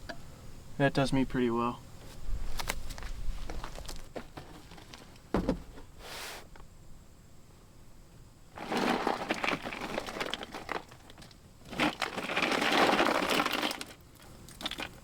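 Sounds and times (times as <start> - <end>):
packaging crinkling: 8.6 - 14.0.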